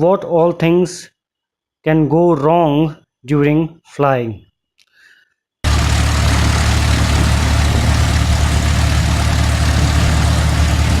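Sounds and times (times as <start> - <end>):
loud engine drone: 5.7 - 11.0.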